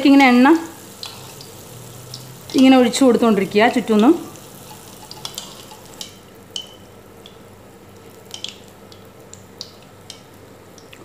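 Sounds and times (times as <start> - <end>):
fritter sizzling in hot oil: 0.0 - 10.9.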